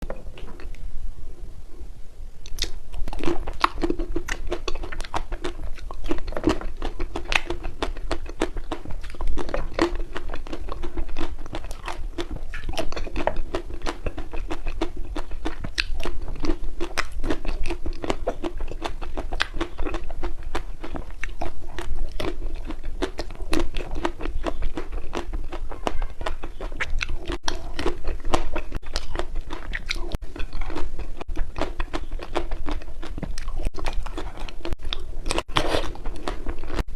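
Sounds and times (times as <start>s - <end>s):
steady low hum: 0.0s - 25.5s
ice cream crunching: 2.4s - 36.9s.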